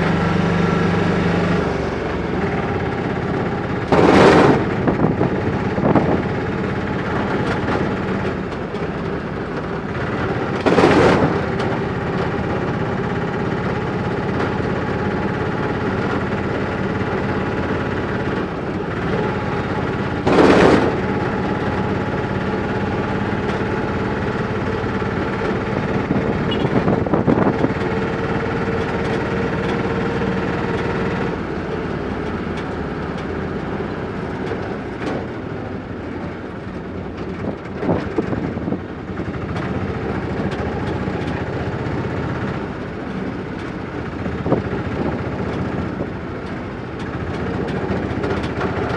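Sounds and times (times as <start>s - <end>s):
motorcycle engine running: 0.0s - 48.9s
loud bursts of noise: 2.4s - 6.3s, 10.6s - 11.6s, 18.9s - 28.2s.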